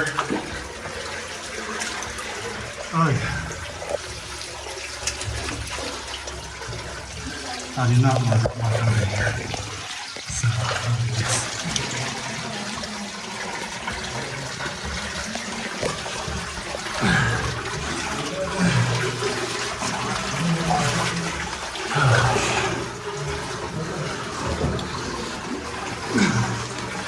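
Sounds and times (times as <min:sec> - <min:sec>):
water running through a cave: 0:00.0 - 0:27.0
low voice sounds: 0:07.8 - 0:11.9.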